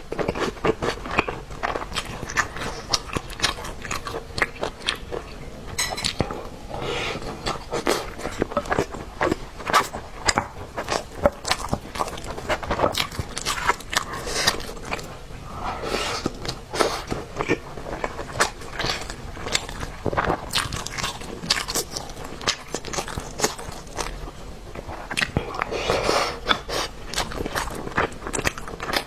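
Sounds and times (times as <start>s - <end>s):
chewing with wet mouth smacks: 0.1s - 5.4s, 6.0s - 6.5s, 7.2s - 15.2s, 16.2s - 29.0s.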